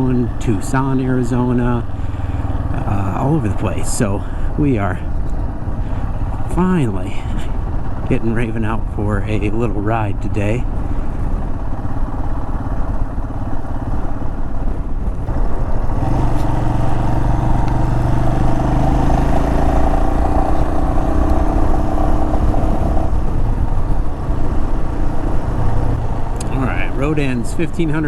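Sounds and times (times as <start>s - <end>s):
low rumble: 0.0s - 28.0s
motorcycle engine running: 0.0s - 28.0s.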